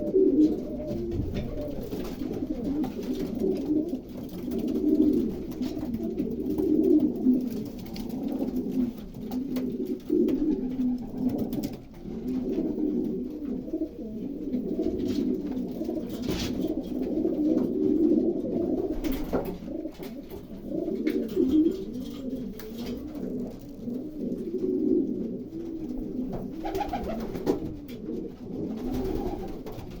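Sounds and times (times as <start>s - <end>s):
pigeons cooing: 0.0s - 30.0s.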